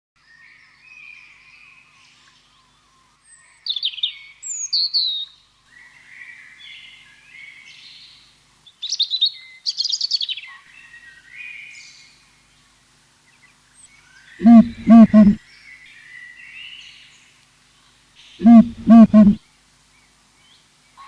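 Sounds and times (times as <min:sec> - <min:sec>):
bird trilling calls: 0:14.4 - 0:15.4, 0:18.4 - 0:19.4
birds chirping: 0:14.4 - 0:15.4, 0:18.4 - 0:19.4.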